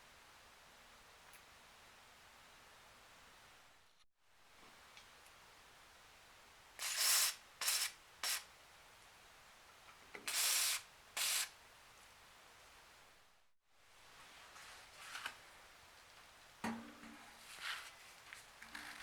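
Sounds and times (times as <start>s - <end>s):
spray hissing: 6.8s - 8.5s, 10.3s - 11.5s.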